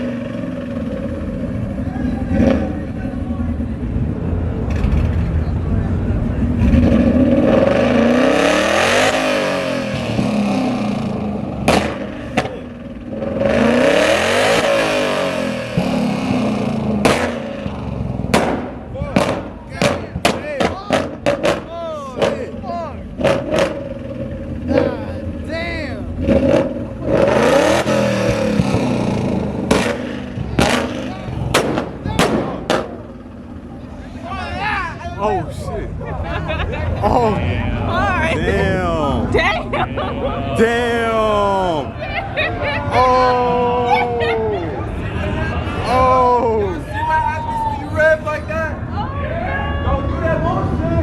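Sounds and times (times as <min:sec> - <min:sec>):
car engine revving: 0:00.0 - 0:46.8
sharp exhaust bangs: 0:03.9 - 0:34.3
sharp bangs: 0:14.4 - 0:22.5, 0:27.8 - 0:33.5.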